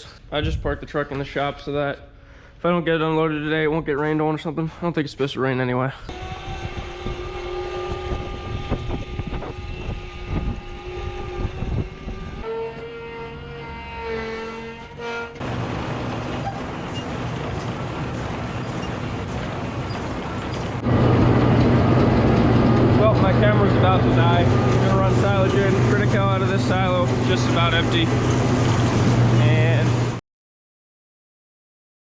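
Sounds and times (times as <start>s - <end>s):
vehicle engine running: 15.4s - 30.2s.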